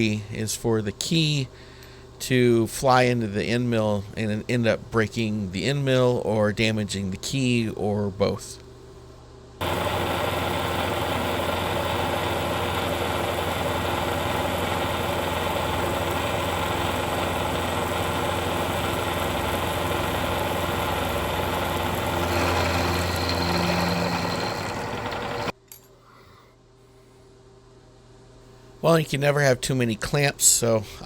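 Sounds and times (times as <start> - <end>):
milling machine cutting steel: 9.6 - 25.5.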